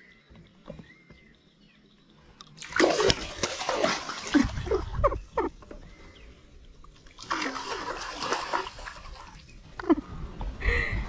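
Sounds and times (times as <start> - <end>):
faint bird chirps: 0.0 - 2.5
water splashing: 2.6 - 5.5, 6.9 - 10.0.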